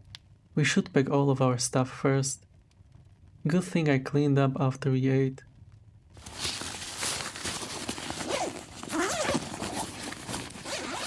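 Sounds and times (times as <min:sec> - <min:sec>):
bag zipper being pulled: 0:06.2 - 0:11.0
fabric rustling: 0:06.2 - 0:11.0.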